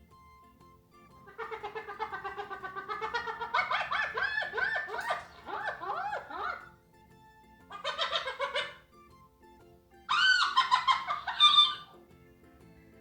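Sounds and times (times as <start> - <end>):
animal yowling cry: 1.3 - 6.7, 7.7 - 8.9, 10.1 - 12.0.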